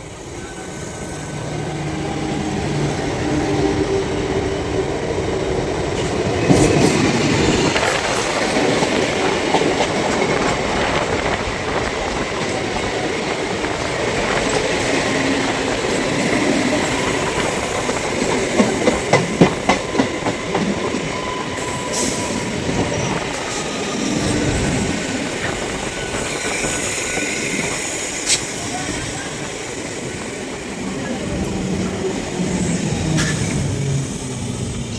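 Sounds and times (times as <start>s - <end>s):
train rumbling past on rails: 0.0s - 34.9s
wheels clacking over rail joints: 5.9s - 21.4s.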